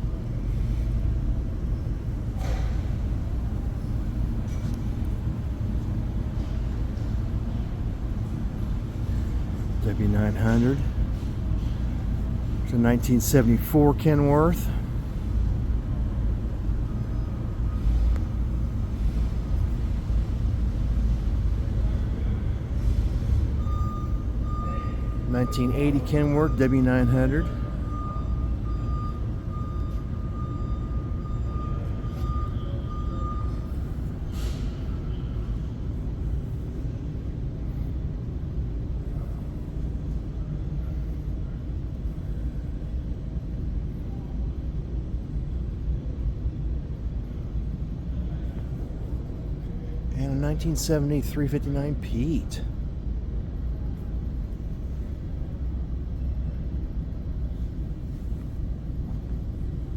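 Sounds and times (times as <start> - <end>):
low rumble of indoor hall: 0.0 - 59.9
faint high beep: 23.6 - 34.6.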